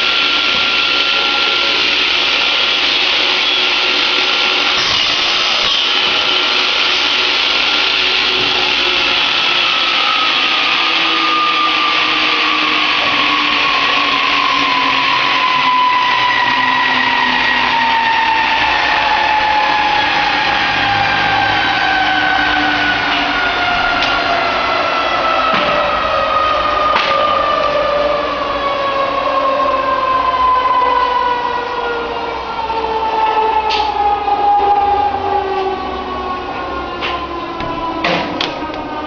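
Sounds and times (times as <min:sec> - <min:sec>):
motor running with hissing noise: 0:00.0 - 0:10.5.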